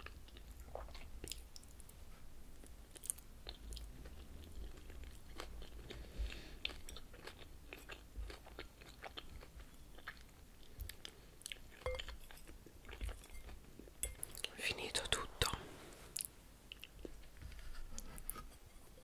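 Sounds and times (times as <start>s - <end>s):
person chewing crunchy salad: 0.0s - 1.8s, 2.6s - 14.5s.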